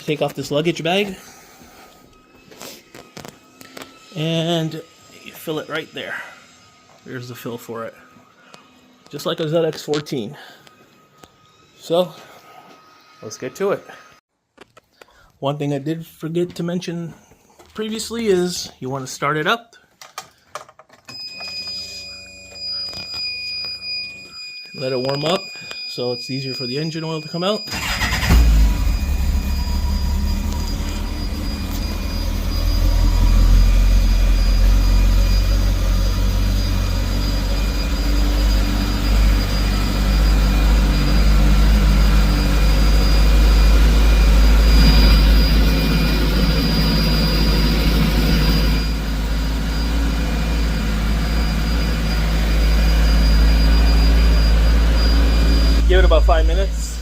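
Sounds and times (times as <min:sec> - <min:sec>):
engine idling: 0:27.7 - 0:57.0.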